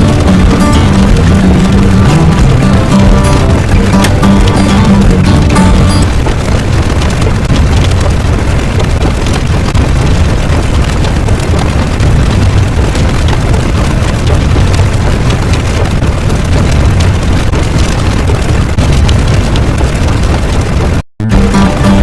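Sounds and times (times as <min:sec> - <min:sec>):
crackling noise: 0:00.0 - 0:22.0
loud low rumble: 0:00.0 - 0:22.0.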